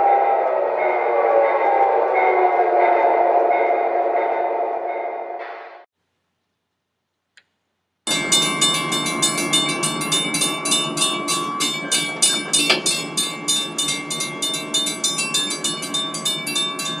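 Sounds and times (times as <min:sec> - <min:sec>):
running gear whine: 0:08.1 - 0:17.0.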